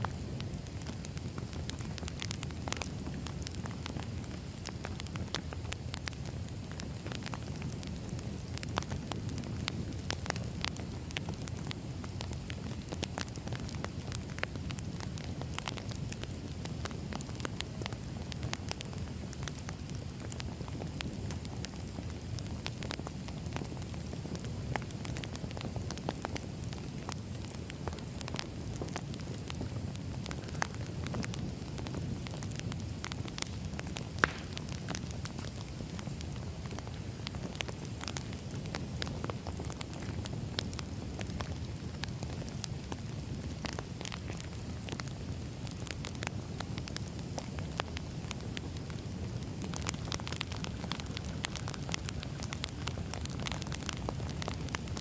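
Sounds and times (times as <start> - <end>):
rush of burning logs: 0.0 - 55.0
wood fire crackling: 0.0 - 55.0.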